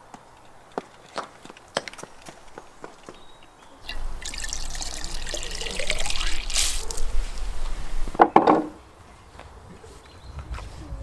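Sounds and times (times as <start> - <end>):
liquid pouring into container: 3.8 - 7.1.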